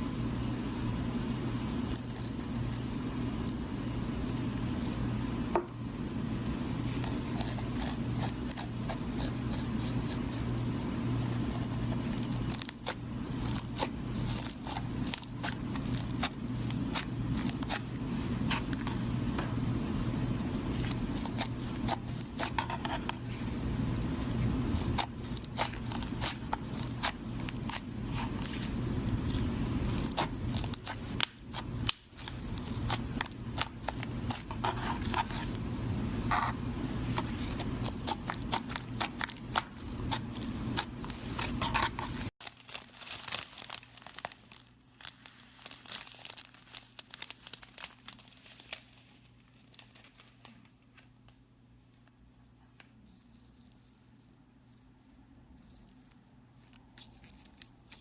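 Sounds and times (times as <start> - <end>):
slime crackling and popping: 24.8 - 28.6, 37.6 - 49.0.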